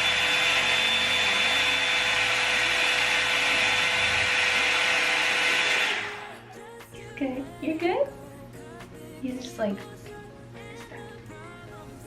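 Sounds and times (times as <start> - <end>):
hot-air brush dryer running: 0.0 - 6.8.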